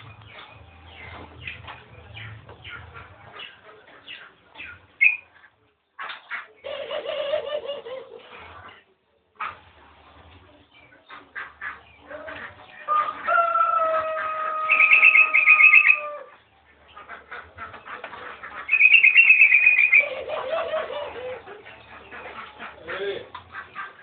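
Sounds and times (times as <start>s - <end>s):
bird singing trilled phrases: 5.0s - 5.3s, 18.7s - 20.1s
long steady bird call: 5.0s - 5.3s, 14.6s - 17.0s, 18.6s - 22.3s.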